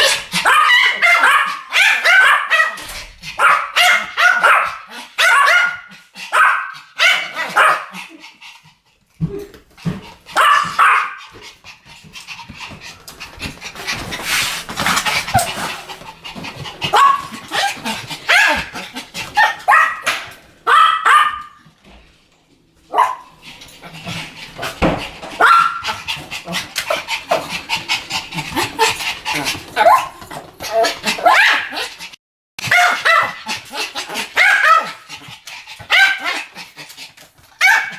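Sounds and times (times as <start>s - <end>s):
small dogs yapping: 0.0s - 8.0s, 10.3s - 11.2s, 13.4s - 21.6s, 22.9s - 37.9s.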